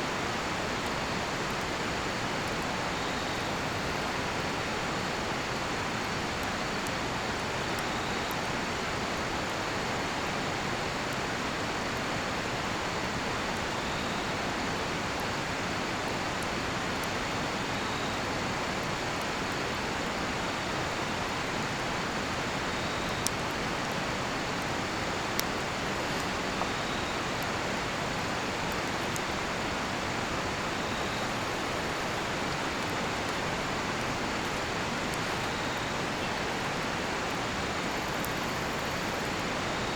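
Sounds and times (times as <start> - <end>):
campfire crackles: 0.0 - 39.9
river rushing: 18.4 - 39.9.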